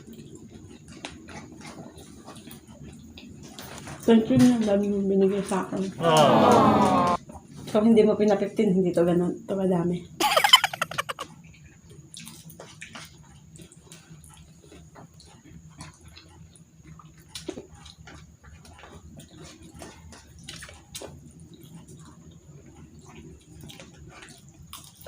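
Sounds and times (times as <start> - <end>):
chewing: 0.0 - 7.2, 11.2 - 25.0.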